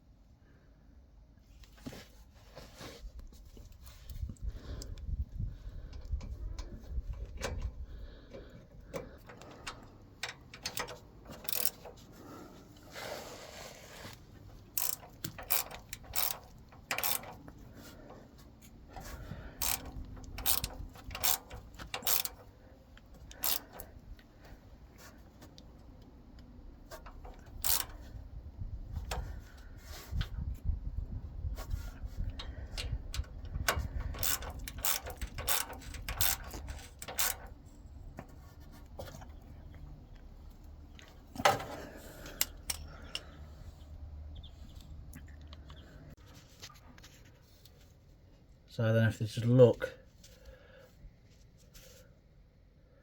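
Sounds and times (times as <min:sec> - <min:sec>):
tools and metal parts clinking: 0:05.8 - 0:12.2, 0:14.6 - 0:18.2, 0:18.9 - 0:24.0, 0:26.9 - 0:28.2, 0:32.1 - 0:38.4.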